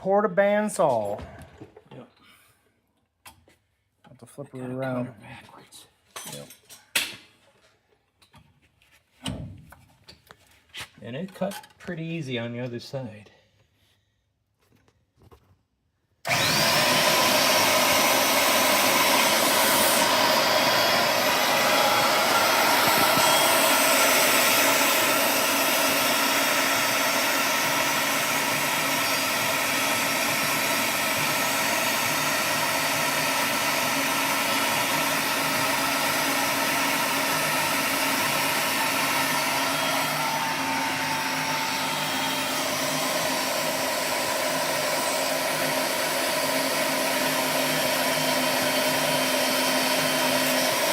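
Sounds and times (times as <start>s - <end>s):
band saw cutting: 16.3s - 50.9s.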